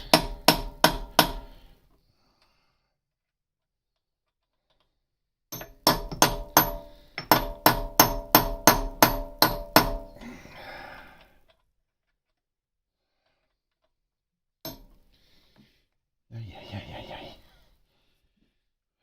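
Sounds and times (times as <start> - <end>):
hammer striking steel punch: 0.0 - 1.6, 5.6 - 10.2, 14.7 - 14.9.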